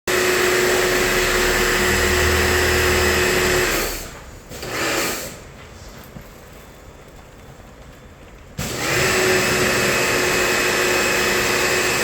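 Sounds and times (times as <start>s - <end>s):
pressure washer spraying water: 0.5s - 5.4s, 8.6s - 12.0s.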